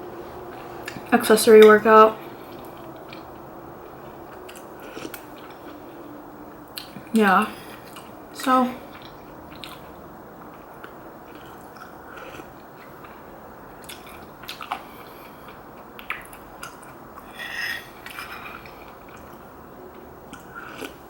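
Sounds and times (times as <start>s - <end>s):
close chewing with wet mouth clicks: 2.4s - 6.0s, 6.7s - 8.2s, 8.8s - 17.3s, 17.9s - 21.0s.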